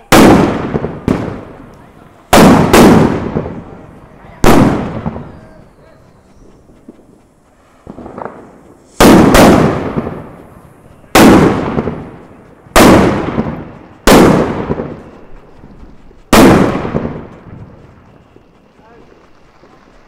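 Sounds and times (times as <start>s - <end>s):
firework bangs: 0.0s - 5.6s, 6.8s - 15.1s, 16.3s - 17.8s.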